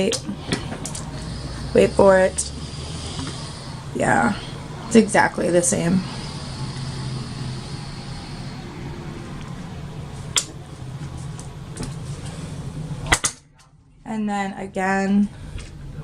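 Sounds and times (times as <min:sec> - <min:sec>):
ventilation hum: 0:00.0 - 0:16.0.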